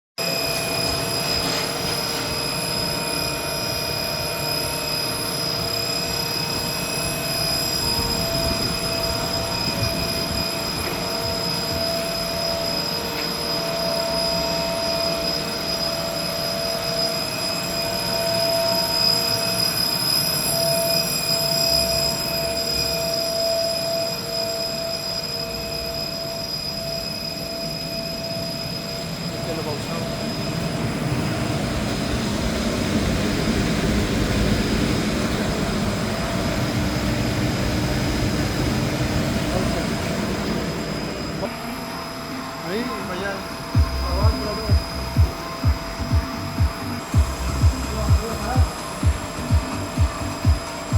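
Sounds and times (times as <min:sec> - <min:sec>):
high-pitched machine whines: 0:00.2 - 0:50.9
machinery low rumble: 0:00.3 - 0:15.9, 0:29.3 - 0:50.9.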